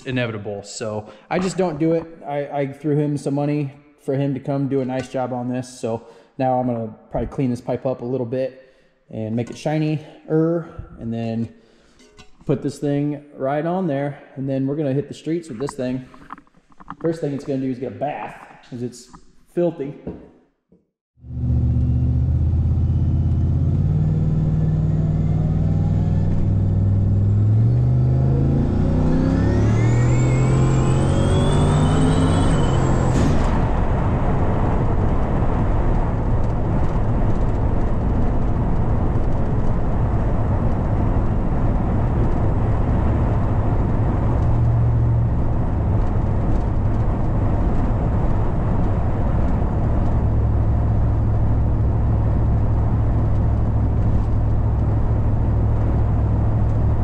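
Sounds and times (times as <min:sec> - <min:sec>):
car engine accelerating: 0:21.2 - 0:57.0
high turbo whistle: 0:28.6 - 0:33.4.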